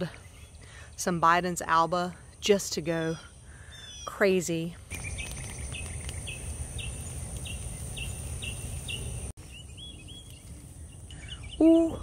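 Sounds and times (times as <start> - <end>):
bird chirping: 1.7 - 12.0
high insect hum: 4.9 - 12.0.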